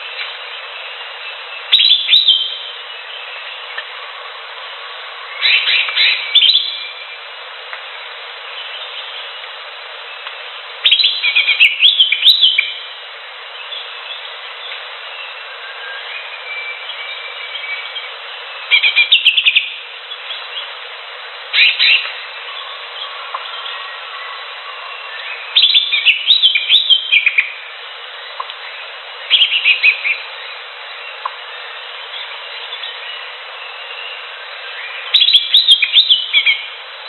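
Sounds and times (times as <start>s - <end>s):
faint birdsong: 0.0s - 37.0s
steady hiss: 0.0s - 37.0s
bird chattering song: 0.1s - 3.9s, 5.4s - 7.1s, 10.2s - 12.9s, 16.0s - 20.8s, 21.6s - 23.9s, 25.1s - 27.6s, 28.3s - 31.4s, 32.0s - 36.8s.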